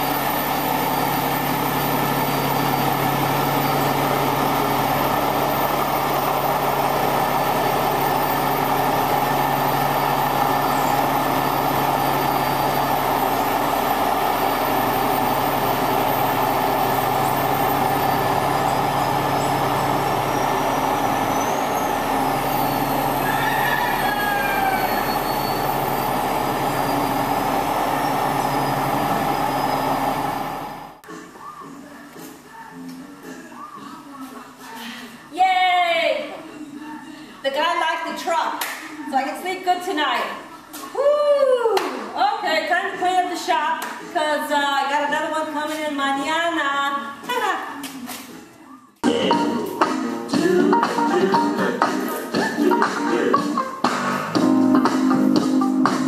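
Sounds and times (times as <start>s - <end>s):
diesel truck engine idling: 0.0s - 32.1s
high gliding squeals: 9.7s - 30.3s.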